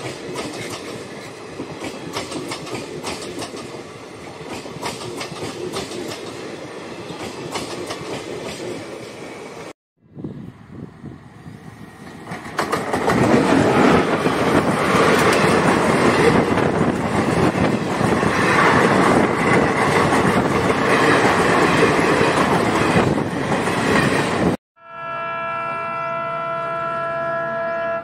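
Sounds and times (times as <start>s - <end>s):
train passing with loud rush: 0.0s - 28.0s
wheels clattering over rail joints: 12.1s - 24.6s.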